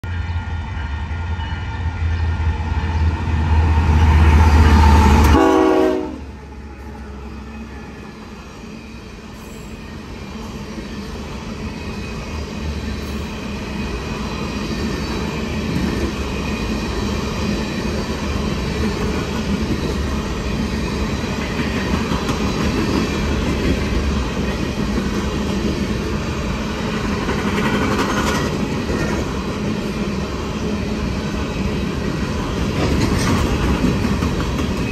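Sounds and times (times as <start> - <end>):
locomotive horn blowing: 5.1 - 6.3
train wheels clattering on rails: 9.3 - 34.9.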